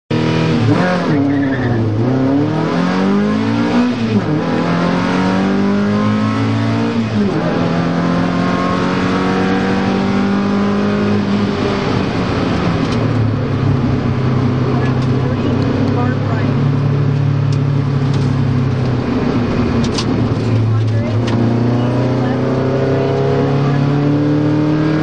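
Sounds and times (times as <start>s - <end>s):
car engine accelerating: 0.1s - 25.0s
road noise on gravel: 14.5s - 22.4s.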